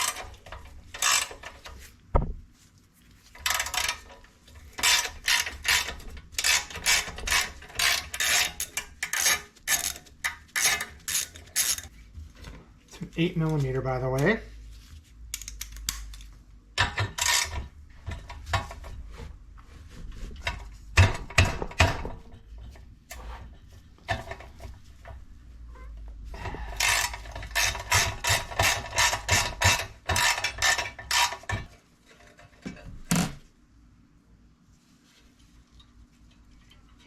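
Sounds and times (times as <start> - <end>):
ratchet wrench clicking: 10.6 - 11.9.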